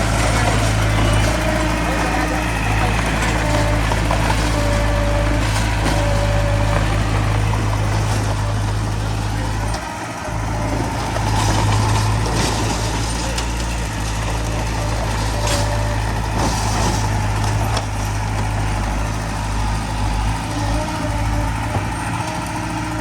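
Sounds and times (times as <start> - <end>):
heavy diesel machinery running: 0.0 - 23.0.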